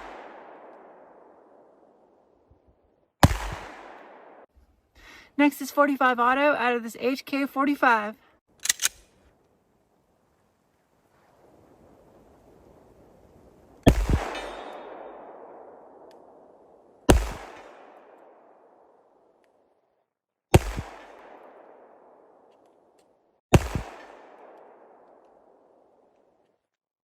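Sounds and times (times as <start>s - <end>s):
pistol shots with echo: 0.0s - 2.2s, 3.2s - 4.5s, 13.9s - 19.3s, 20.5s - 22.6s, 23.5s - 26.0s.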